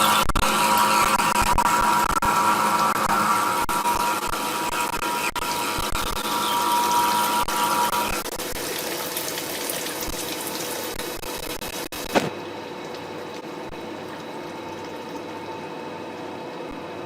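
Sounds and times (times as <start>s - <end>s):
machine cutting whine: 0.0s - 8.8s.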